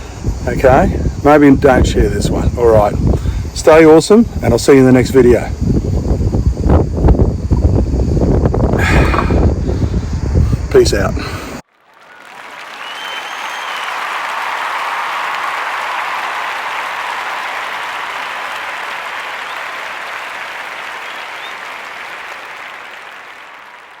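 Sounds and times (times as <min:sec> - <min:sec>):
crowd applause: 0:11.7 - 0:24.0
faint whistles: 0:12.0 - 0:23.4.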